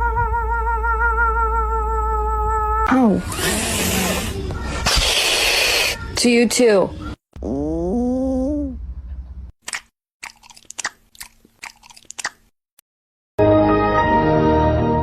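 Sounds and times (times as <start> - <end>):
crunchy food chewing: 9.6 - 12.5.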